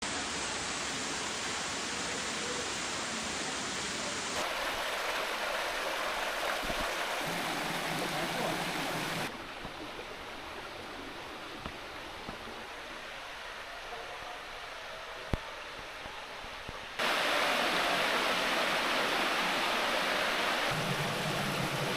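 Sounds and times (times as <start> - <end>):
waterfall rushing and splashing: 0.0 - 13.9, 17.0 - 21.9.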